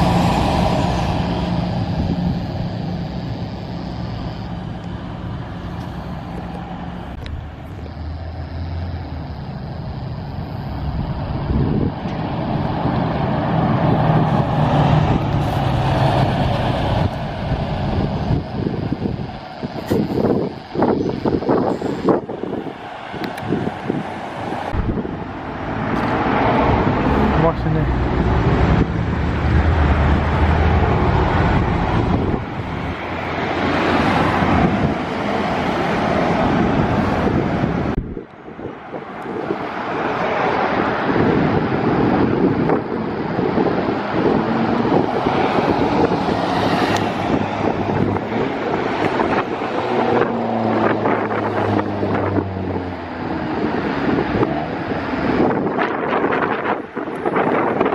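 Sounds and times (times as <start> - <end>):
wind buffeting microphone: 0.0 - 8.1, 9.2 - 57.9
heavy vehicle engine passing: 0.0 - 57.9.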